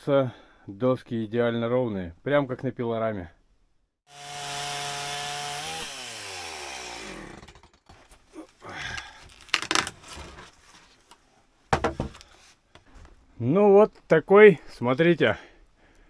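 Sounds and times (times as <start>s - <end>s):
chainsaw running at full throttle: 4.1s - 7.6s
knocks and clatters: 11.7s - 12.3s.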